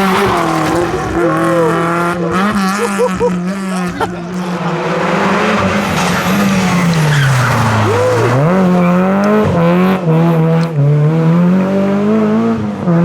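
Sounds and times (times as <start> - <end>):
rally car engine accelerating: 0.0 - 13.0
tyre squeal: 5.7 - 9.5.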